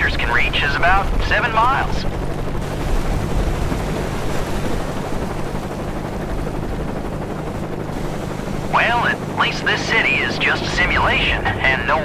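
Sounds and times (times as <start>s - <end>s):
helicopter rotor drone: 0.0s - 12.0s
rushing tsunami wave: 7.9s - 12.0s.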